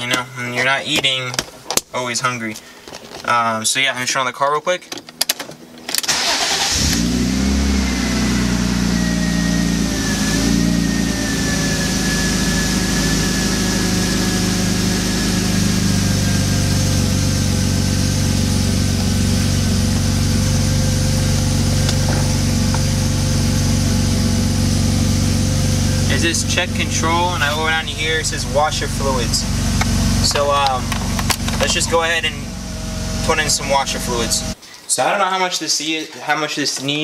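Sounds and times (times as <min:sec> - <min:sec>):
car engine starting and idling: 0:05.1 - 0:34.6.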